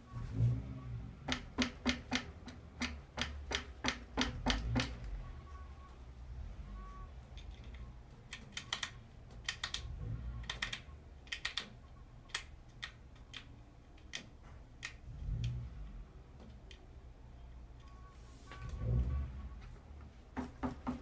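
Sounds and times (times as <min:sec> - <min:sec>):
rear shock clicking and knocking: 0:01.2 - 0:05.0.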